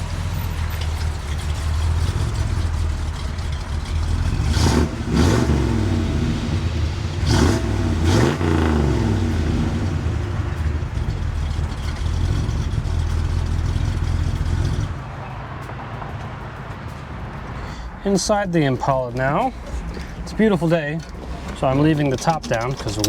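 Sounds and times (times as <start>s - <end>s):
car engine idling and revving: 0.0s - 17.7s.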